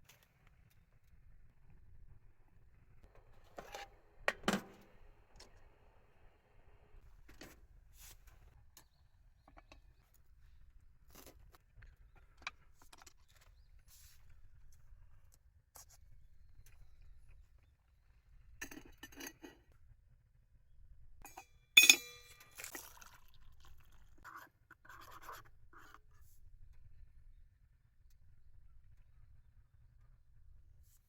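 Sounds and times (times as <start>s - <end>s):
sharp metallic clink: 21.2s - 22.6s.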